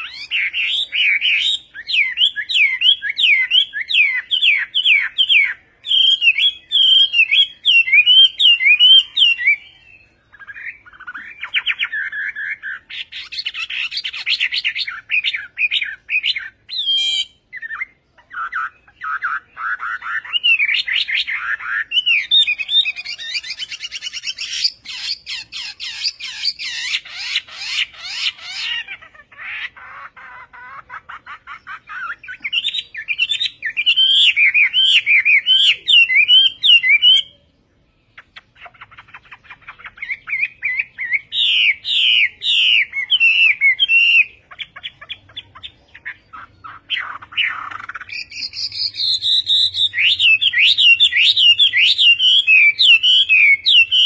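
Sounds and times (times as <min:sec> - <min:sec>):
bird singing whistled phrases: 0:00.0 - 0:54.0.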